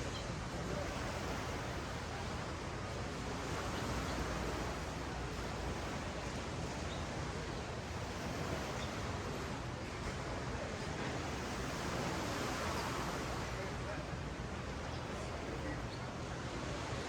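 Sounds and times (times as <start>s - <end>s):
ocean waves washing on sand: 0.0s - 17.0s.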